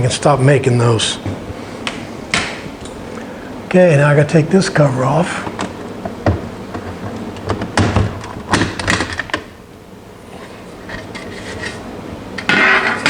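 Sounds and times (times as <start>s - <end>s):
knocks on plywood cover: 6.1s - 9.0s
rasping scrape: 10.3s - 11.8s.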